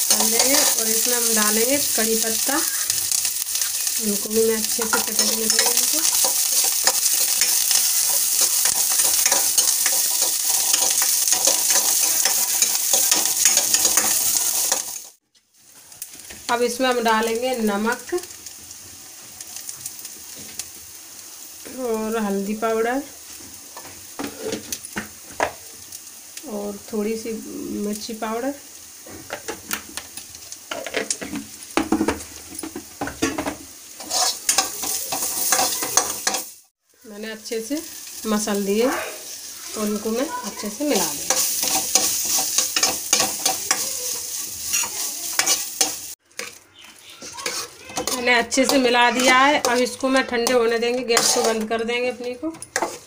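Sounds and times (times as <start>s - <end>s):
spatula scraping pan: 0.0s - 15.2s, 23.4s - 25.5s, 30.7s - 36.6s, 38.8s - 53.0s
vegetables sizzling in hot oil: 0.0s - 53.0s.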